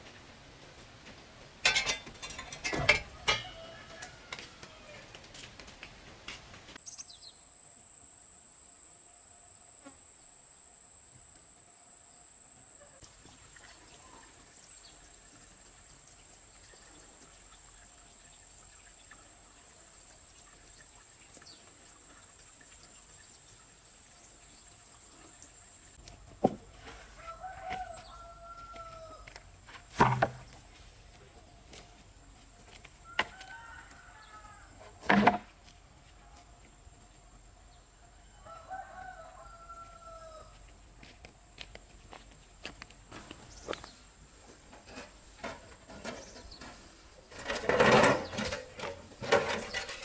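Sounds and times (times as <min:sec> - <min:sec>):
rooster crowing: 0:03.0 - 0:05.2, 0:27.1 - 0:29.3, 0:33.0 - 0:34.9, 0:38.2 - 0:40.6.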